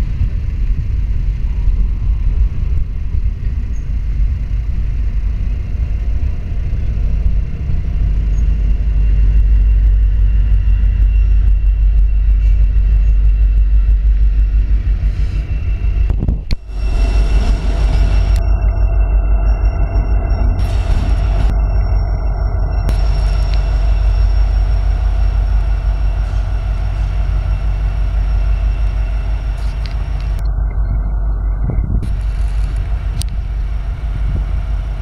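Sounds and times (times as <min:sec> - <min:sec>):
diesel locomotive rolling past: 0:00.0 - 0:35.0
train wheels rumbling on rails: 0:00.0 - 0:35.0.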